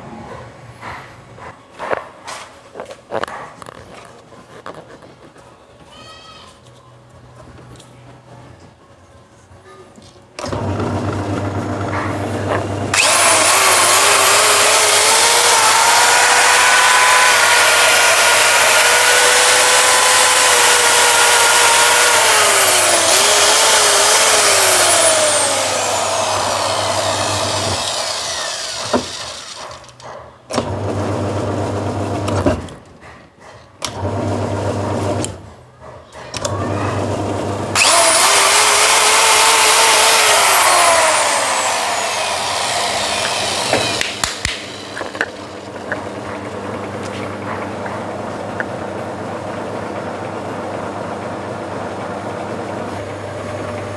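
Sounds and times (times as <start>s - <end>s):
electric power tool motor: 10.4s - 30.0s, 37.1s - 46.0s.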